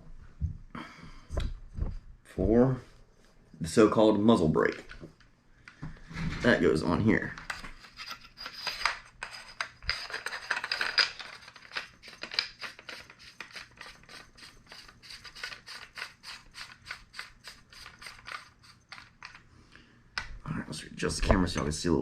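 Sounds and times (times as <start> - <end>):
metal scraping: 6.0 - 19.4.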